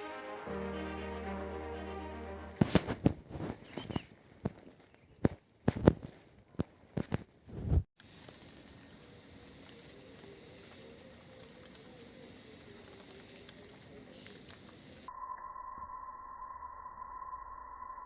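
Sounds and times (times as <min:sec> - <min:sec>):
high-pitched whine: 0:15.1 - 0:18.0.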